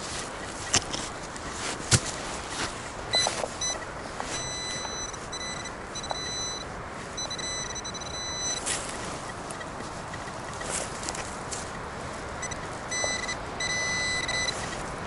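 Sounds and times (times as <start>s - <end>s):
metal detector beeps: 2.5s - 10.9s, 12.4s - 14.9s.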